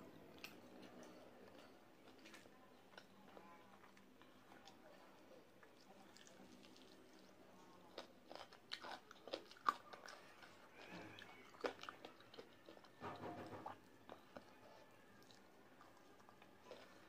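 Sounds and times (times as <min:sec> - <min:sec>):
biting and chewing clicks: 0:07.8 - 0:13.0.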